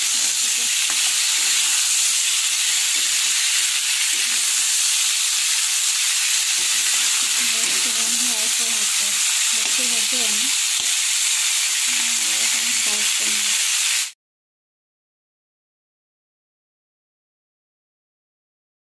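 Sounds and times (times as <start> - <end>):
vegetables sizzling in hot oil: 0.0 - 14.2
metal spatula stirring: 0.1 - 10.1.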